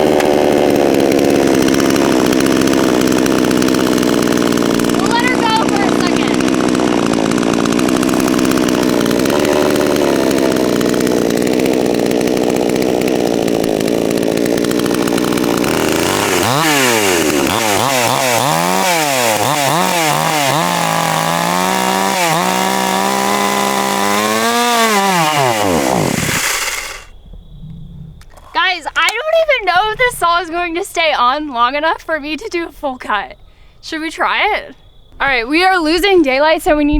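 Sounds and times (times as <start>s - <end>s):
chainsaw revving: 0.0s - 27.1s.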